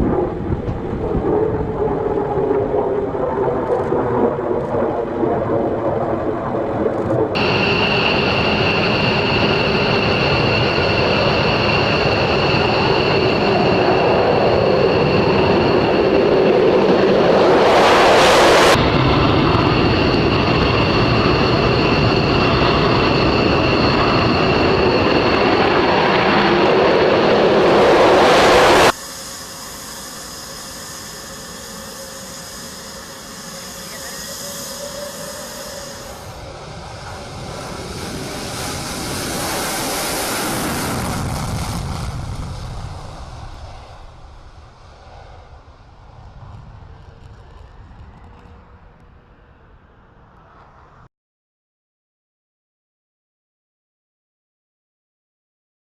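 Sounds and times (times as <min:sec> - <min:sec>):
jet fighter engine whining: 0:00.0 - 0:51.1
jet passing: 0:00.0 - 0:51.1.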